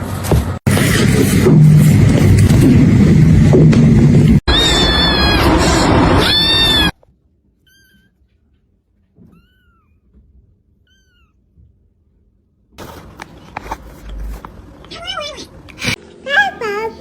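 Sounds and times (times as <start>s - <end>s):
kitten meowing: 4.5s - 7.0s, 7.6s - 8.2s, 9.2s - 10.0s, 10.8s - 11.4s.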